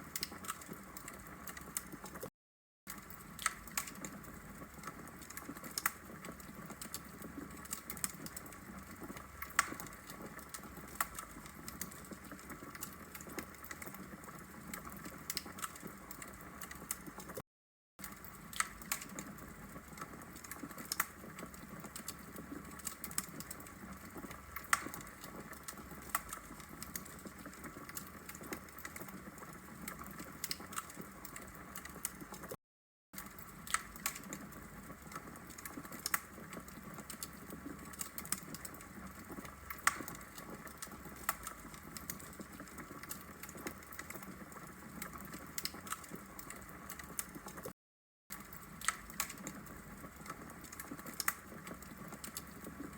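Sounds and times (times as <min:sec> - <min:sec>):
fire crackling and popping: 0:00.0 - 0:02.3, 0:02.9 - 0:17.4, 0:18.0 - 0:32.6, 0:33.2 - 0:47.7, 0:48.3 - 0:52.9.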